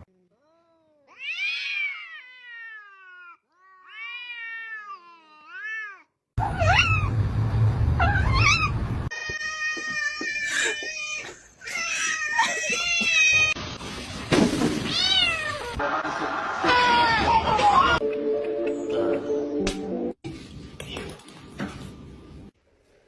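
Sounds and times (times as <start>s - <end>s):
cats meowing and yowling: 1.0s - 7.1s, 8.0s - 13.6s, 14.8s - 15.8s.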